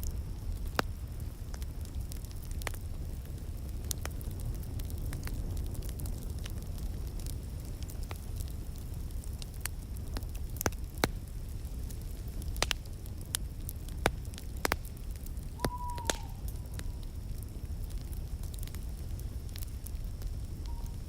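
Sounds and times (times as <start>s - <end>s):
wood fire crackling: 0.0s - 21.0s
whistle-like falling tone: 15.6s - 16.4s.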